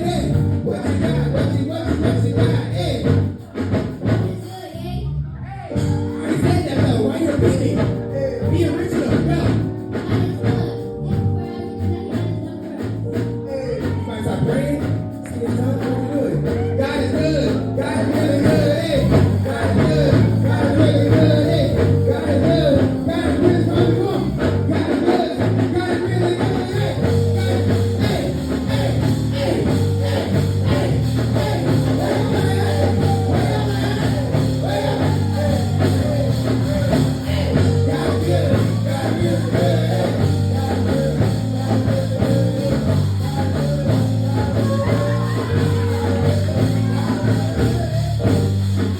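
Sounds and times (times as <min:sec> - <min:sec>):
guitar: 0:00.0 - 0:48.9
steady bass line: 0:00.0 - 0:48.9
person singing: 0:15.6 - 0:48.5.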